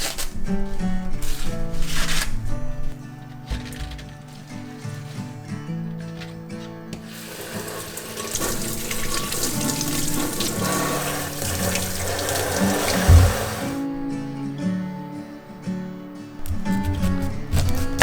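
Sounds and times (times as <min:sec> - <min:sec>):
soft background music: 0:00.0 - 0:18.0
tap water running into sink: 0:07.0 - 0:13.8.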